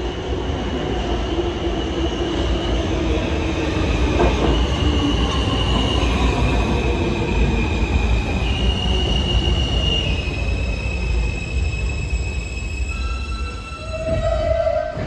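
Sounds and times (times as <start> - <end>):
train rumble: 2.3 - 15.0
train wheels squealing: 4.1 - 15.0.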